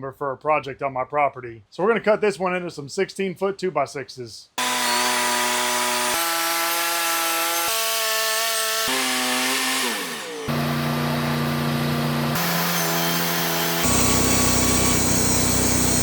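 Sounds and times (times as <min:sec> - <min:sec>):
band sawmill humming: 0:08.9 - 0:16.0.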